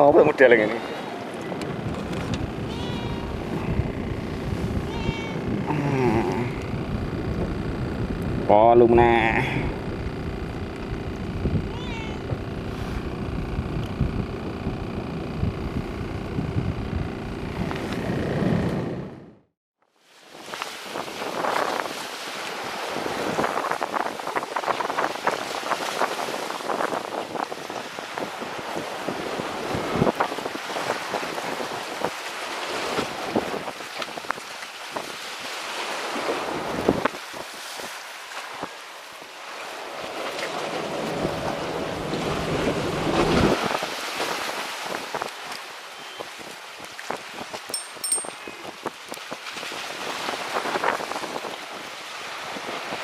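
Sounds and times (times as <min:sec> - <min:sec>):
sea surf washing: 0:00.0 - 0:15.1, 0:20.2 - 0:53.0
wind: 0:00.0 - 0:53.0
wind buffeting microphone: 0:01.4 - 0:19.2.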